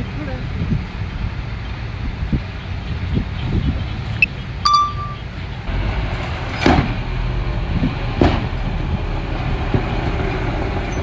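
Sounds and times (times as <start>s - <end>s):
ringing metallic clang: 4.7s - 5.2s.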